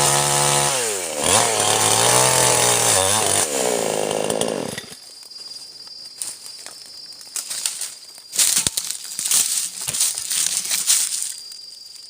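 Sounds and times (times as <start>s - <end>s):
high insect trill: 4.1s - 12.0s
rustling and crackling: 5.2s - 12.0s.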